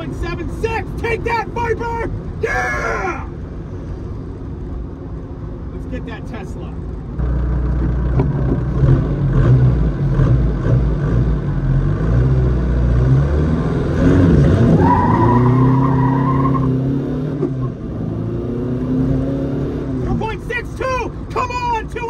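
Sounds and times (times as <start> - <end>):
car engine revving: 7.1 - 20.4.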